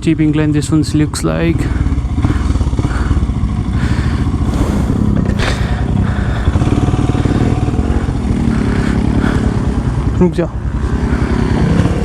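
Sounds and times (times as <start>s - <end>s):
motorcycle engine running: 0.0s - 12.0s
clatter: 1.6s - 12.0s.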